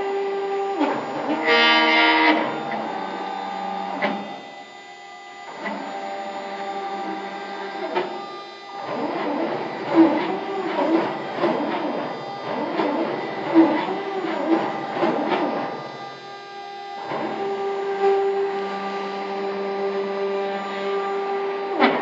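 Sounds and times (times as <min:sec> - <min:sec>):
stepper motors whining: 0:00.0 - 0:22.0.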